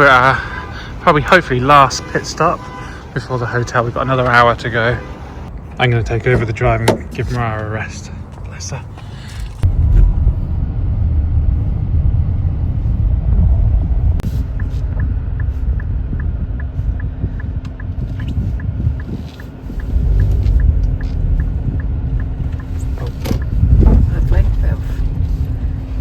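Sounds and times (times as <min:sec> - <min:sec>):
car engine and road rumble: 0:00.0 - 0:26.0
turn signal ticking: 0:14.2 - 0:26.0.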